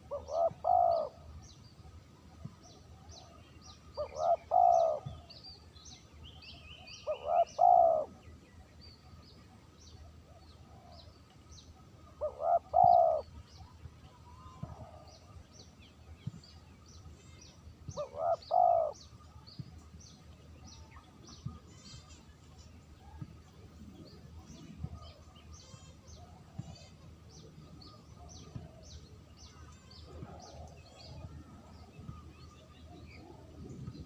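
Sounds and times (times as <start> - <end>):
dove cooing: 0.0 - 1.2, 4.0 - 5.2, 7.0 - 8.2, 12.2 - 13.3, 18.0 - 19.0
small birds chirping faintly: 0.0 - 34.0.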